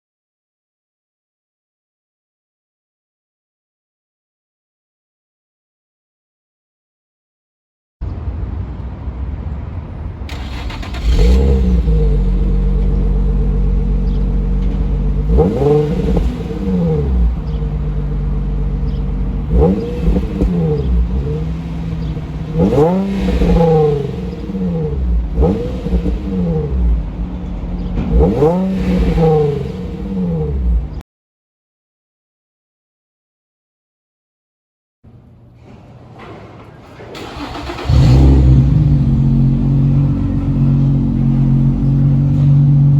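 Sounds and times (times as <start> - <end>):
car exhaust idling and revving: 11.0 - 31.0, 37.9 - 42.9.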